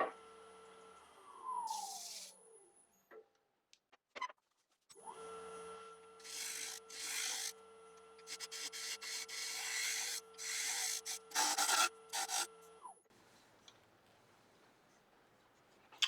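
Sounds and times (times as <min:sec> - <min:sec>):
lathe motor hum: 0:05.3 - 0:12.5
lathe tool rasping cuts: 0:06.2 - 0:07.5, 0:08.2 - 0:12.5.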